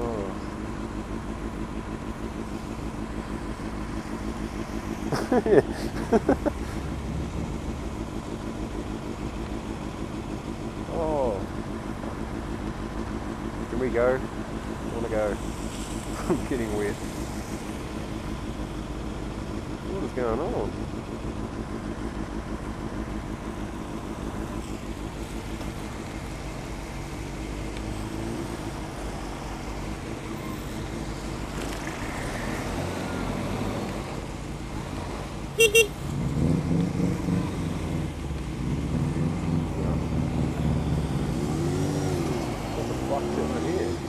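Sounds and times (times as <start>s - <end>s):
vehicle engine revving: 0.0s - 44.0s
vehicle engines idling in traffic: 0.0s - 44.0s
horn toots: 35.6s - 36.0s.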